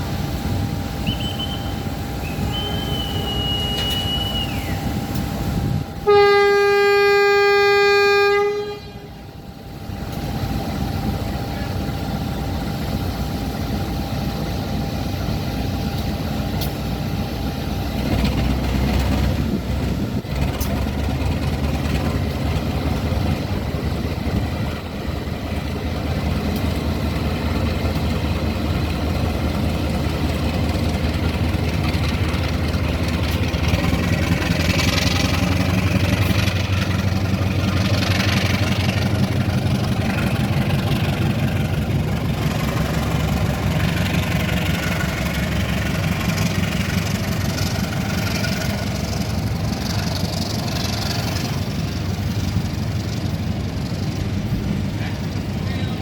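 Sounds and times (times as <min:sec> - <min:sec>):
locomotive engine running: 0:00.0 - 0:56.0.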